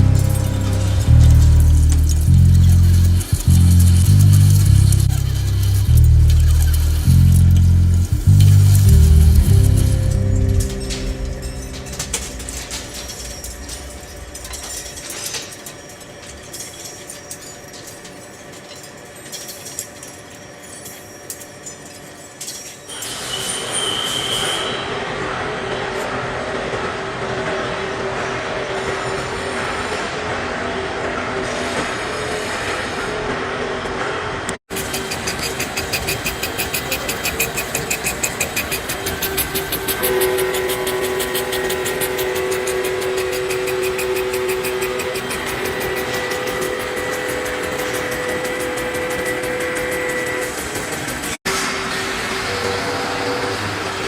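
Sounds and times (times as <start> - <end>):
higher steady tone: 0.0 - 15.4, 38.8 - 50.8
sharp metal clicks and clanks: 0.0 - 23.1, 34.7 - 51.4
metalworking machinery hum: 0.0 - 23.9, 24.7 - 54.0
metal cutting hiss and squeal: 0.0 - 25.3, 34.7 - 54.0
machine tool fast ticking: 0.3 - 9.8, 34.7 - 51.4.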